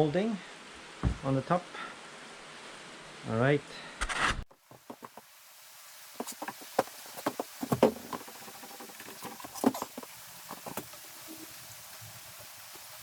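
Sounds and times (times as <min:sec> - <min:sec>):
wooden molding knocking and clattering: 0:04.7 - 0:05.2, 0:06.2 - 0:11.0.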